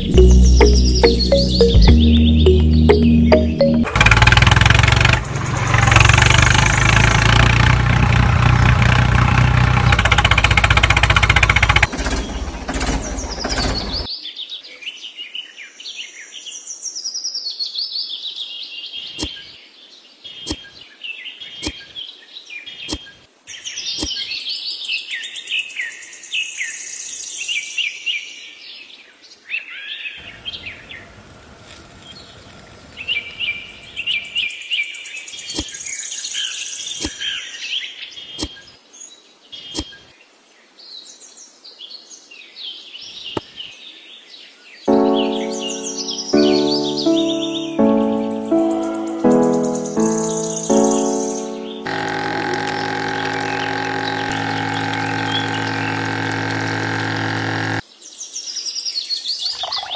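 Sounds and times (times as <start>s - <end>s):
birds chirping: 0.0s - 4.0s, 11.0s - 14.1s, 30.2s - 34.4s, 59.4s - 59.9s.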